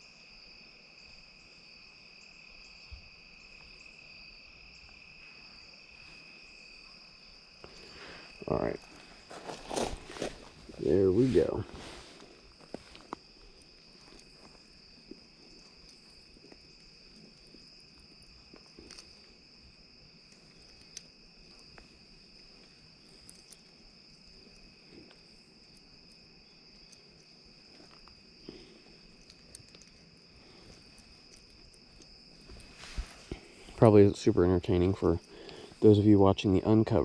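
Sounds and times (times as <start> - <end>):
crickets trilling: 0.0 - 37.0
faint clicks and ticks: 20.2 - 34.0.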